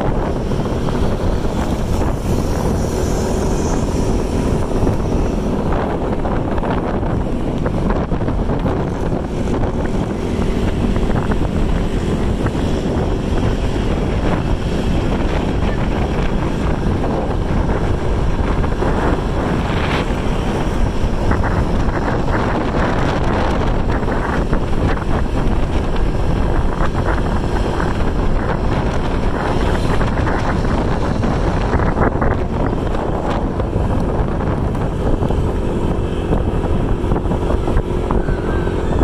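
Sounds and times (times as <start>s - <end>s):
vehicle running noise: 0.0s - 39.0s
wind buffeting microphone: 0.0s - 39.0s.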